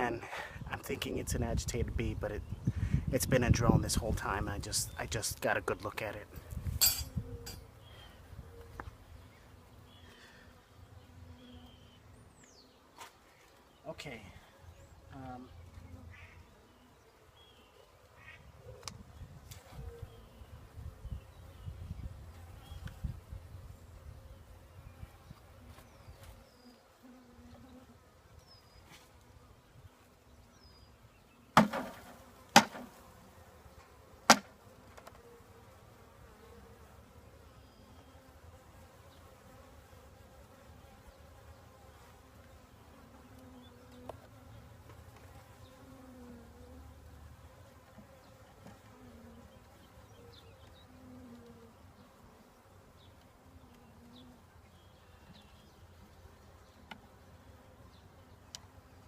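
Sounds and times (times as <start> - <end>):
bees buzzing: 4.3 - 13.6, 14.7 - 59.0
sharp knocks: 31.6 - 32.9, 34.3 - 34.5.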